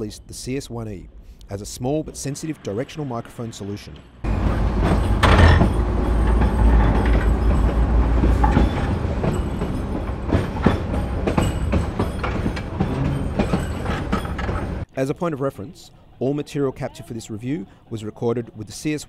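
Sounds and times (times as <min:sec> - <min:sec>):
irregular clanks and knocks: 0:04.0 - 0:14.9
heavy low rumble: 0:04.2 - 0:14.8.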